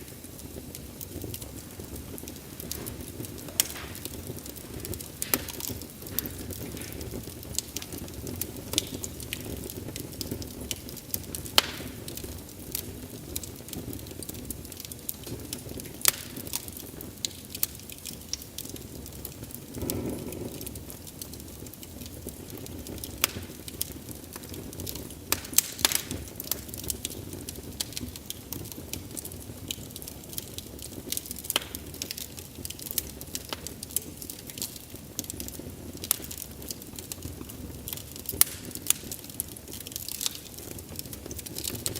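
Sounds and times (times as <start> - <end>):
fire whoosh: 0.0 - 8.8
low rumble of flame: 0.0 - 41.9
wood fire crackling and popping: 0.0 - 41.9.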